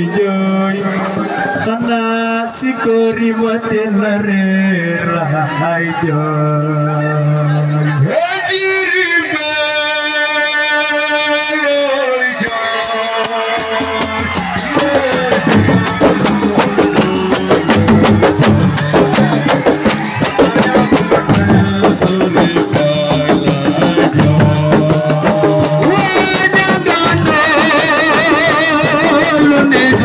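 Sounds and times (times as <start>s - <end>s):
drumming: 12.3s - 30.0s
live band playing: 12.4s - 30.0s.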